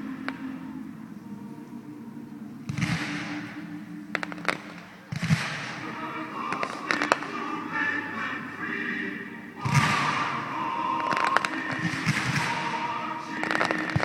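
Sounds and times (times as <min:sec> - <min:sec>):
music playing: 0:00.0 - 0:14.0
fireworks booming: 0:04.1 - 0:07.5, 0:09.6 - 0:14.0
fireworks cracking: 0:04.2 - 0:07.7, 0:09.6 - 0:14.0.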